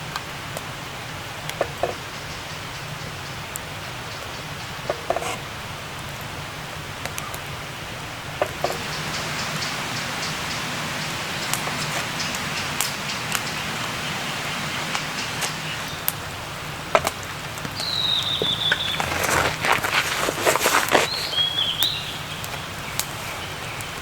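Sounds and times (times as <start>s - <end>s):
rain falling: 0.0s - 24.0s
rustling: 14.7s - 24.0s.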